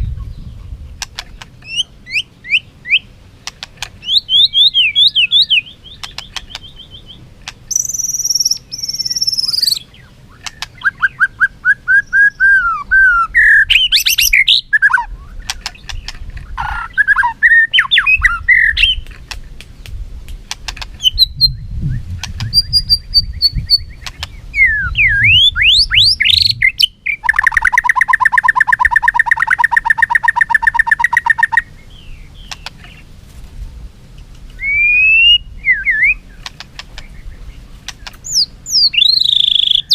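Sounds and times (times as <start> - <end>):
bird singing whistles and trills: 1.6 - 3.1, 4.0 - 19.1, 21.0 - 33.0, 34.5 - 39.9.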